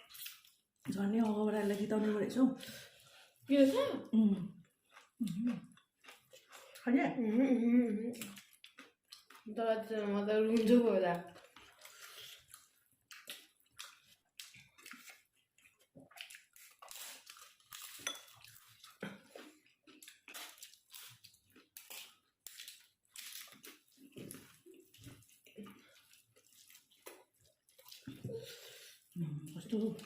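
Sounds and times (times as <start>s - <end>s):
mouth sounds of eating: 3.4s - 17.6s
utensils clinking on a plate: 17.9s - 18.6s.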